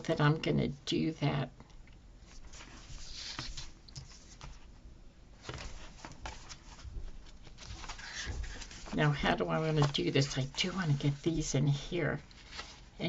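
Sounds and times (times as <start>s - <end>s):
paper rustling: 2.3s - 4.7s, 5.4s - 11.6s, 12.2s - 12.9s.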